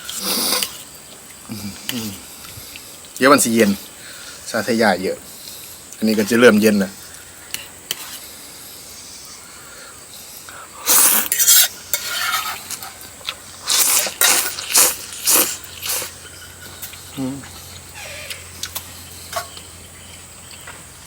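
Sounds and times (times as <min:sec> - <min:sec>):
noodles being slurped: 0:00.0 - 0:00.8, 0:10.8 - 0:13.0, 0:13.6 - 0:16.2.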